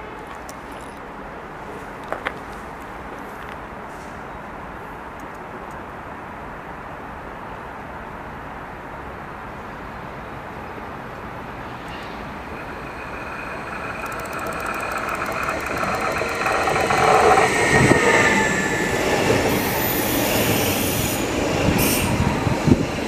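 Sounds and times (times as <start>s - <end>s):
electric train passing rumble: 10.4s - 23.0s
high-pitched whining tones: 11.4s - 22.2s.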